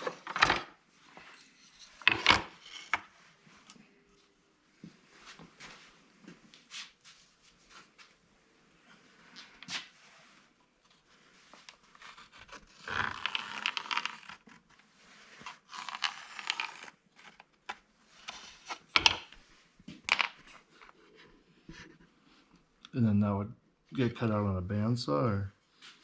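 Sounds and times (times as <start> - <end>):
paper rustling and sliding: 13.1 - 17.4.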